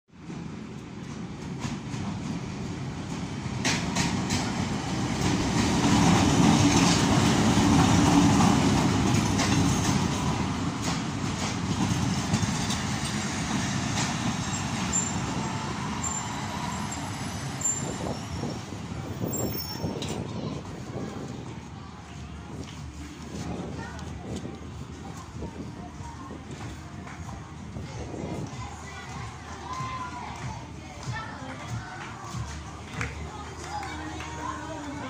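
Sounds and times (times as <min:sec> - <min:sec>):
diesel locomotive rumble: 0:00.2 - 0:30.4
train wheels clacking: 0:03.0 - 0:17.8.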